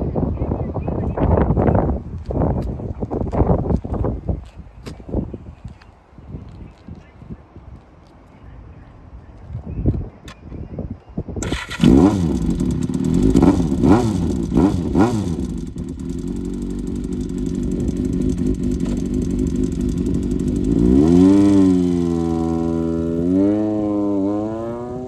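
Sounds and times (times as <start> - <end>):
motorcycle engine revving: 11.4 - 25.0.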